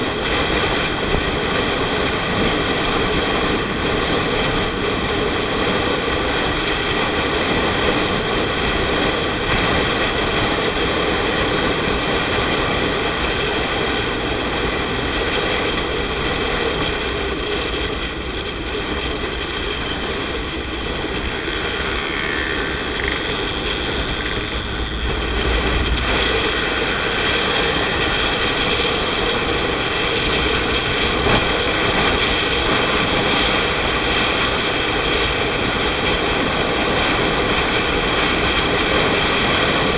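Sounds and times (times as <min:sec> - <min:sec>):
motorcycle engine drone: 0:00.0 - 0:39.9
wind rushing: 0:00.0 - 0:39.9
deep low rumble: 0:07.9 - 0:33.2.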